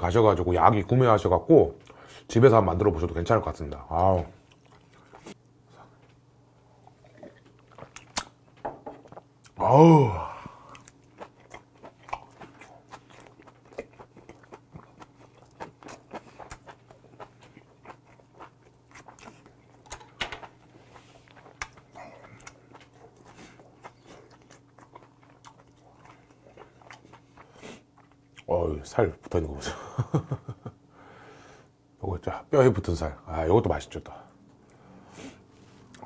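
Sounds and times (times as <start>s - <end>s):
faint low hum: 0.0s - 36.0s
person chewing wetly: 4.2s - 5.4s, 6.8s - 9.6s, 10.4s - 28.5s.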